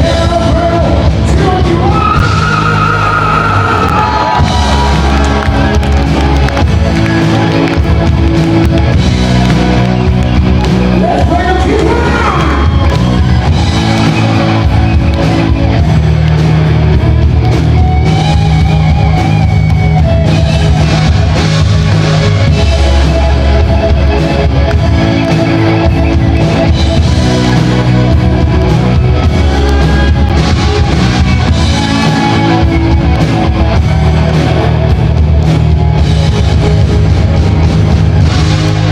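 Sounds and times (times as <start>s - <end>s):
person singing: 0.0s - 4.3s
bass guitar: 0.0s - 38.9s
drum kit: 0.0s - 38.9s
electric guitars: 0.0s - 38.9s.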